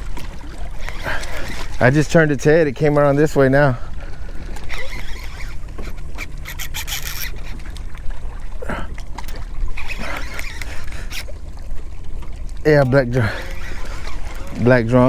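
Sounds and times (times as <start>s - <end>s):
water trickling: 0.0s - 15.0s
fishing reel clicking: 0.7s - 2.2s, 4.4s - 7.7s, 9.2s - 11.3s, 13.2s - 14.6s.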